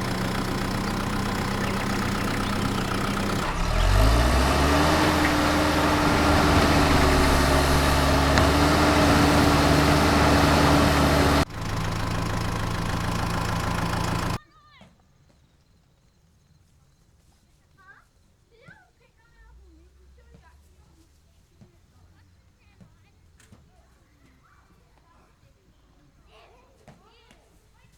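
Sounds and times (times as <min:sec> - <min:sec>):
engine idling and revving: 0:00.0 - 0:14.4.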